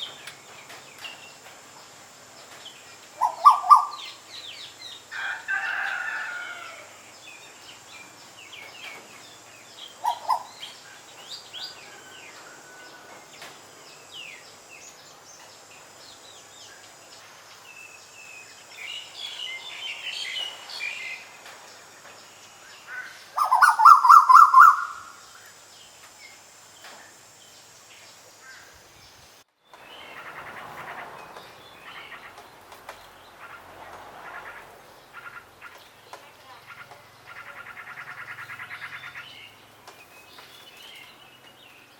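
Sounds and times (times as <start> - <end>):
wild birds chirping and calling: 2.4 - 15.0, 16.1 - 25.6, 28.1 - 41.9
loud bird call: 3.2 - 4.3, 9.9 - 10.8, 22.9 - 25.3.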